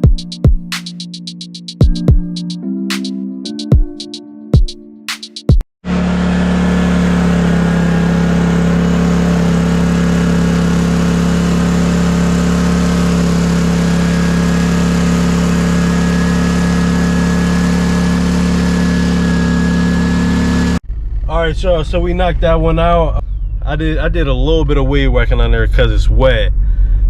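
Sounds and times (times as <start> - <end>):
lawn mower engine running: 5.8 - 20.8.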